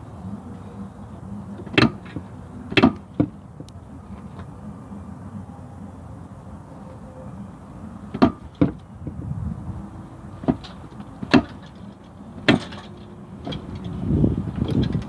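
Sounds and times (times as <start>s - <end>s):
engine knocks and clanks: 0.0s - 4.8s, 8.1s - 15.0s.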